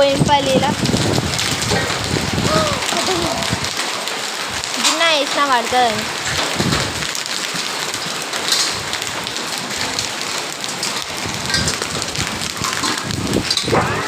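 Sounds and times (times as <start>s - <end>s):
heavy rain with hail: 0.0s - 14.0s.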